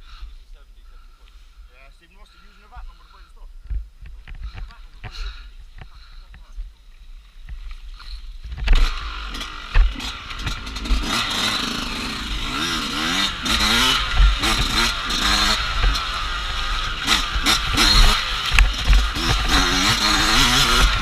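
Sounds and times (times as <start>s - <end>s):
irregular low thumps: 3.6s - 5.1s
dirt bike engine revving: 8.0s - 21.0s.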